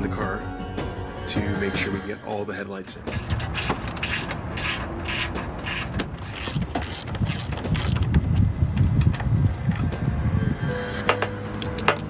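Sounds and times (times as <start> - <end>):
mechanical clicks and rattles: 3.0 - 9.8.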